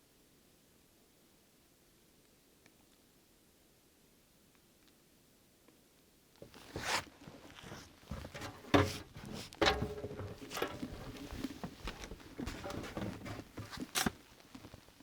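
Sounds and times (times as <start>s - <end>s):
rustling and scraping: 6.4s - 15.0s.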